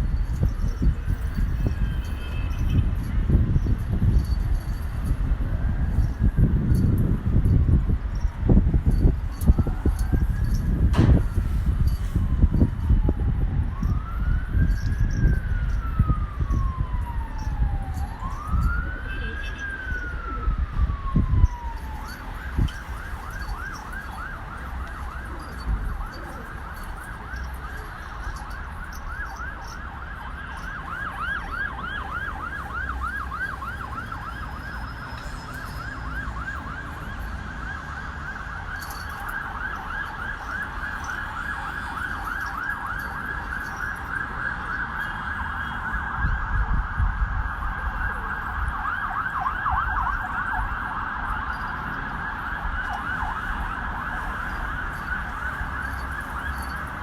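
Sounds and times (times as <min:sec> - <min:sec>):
low rumbling thumps: 0:10.8 - 0:11.8
electronic siren wailing and yelping: 0:12.6 - 0:57.0.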